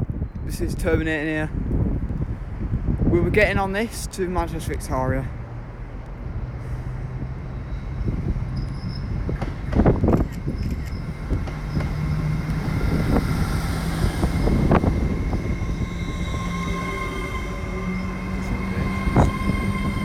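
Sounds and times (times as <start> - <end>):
train engine hum: 1.5 - 20.0
high squeal: 7.6 - 9.3, 10.4 - 20.0.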